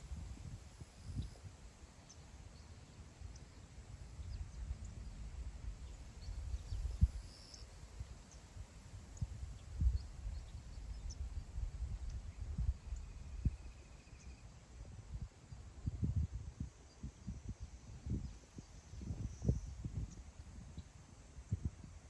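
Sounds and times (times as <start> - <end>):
wind buffeting microphone: 0.0 - 1.4, 4.2 - 8.2, 8.9 - 13.7, 14.9 - 20.8
faint high bird chirps: 12.0 - 14.6.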